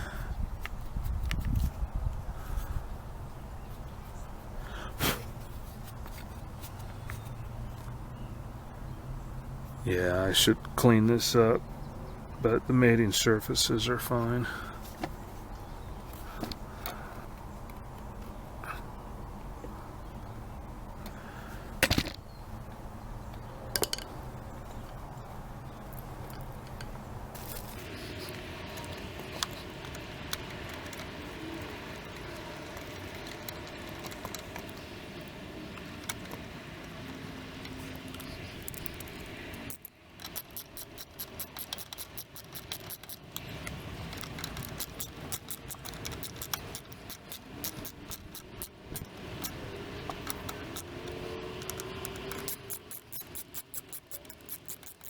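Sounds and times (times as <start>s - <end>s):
metal parts clicking and rattling: 25.8s - 36.4s, 37.6s - 55.0s.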